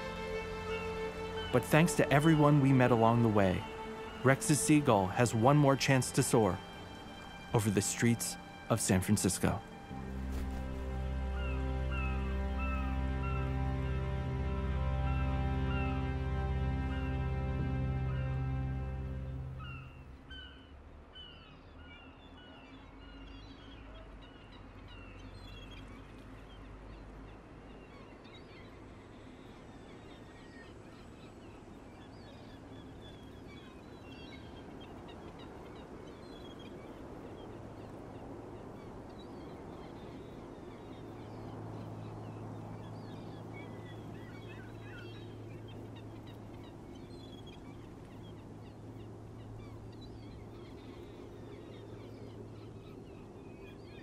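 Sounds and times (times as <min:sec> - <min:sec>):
steady background rush: 0:00.0 - 0:20.0
low steady hum: 0:00.0 - 0:20.3, 0:25.2 - 0:54.0
birds chirping and calling: 0:00.0 - 0:54.0.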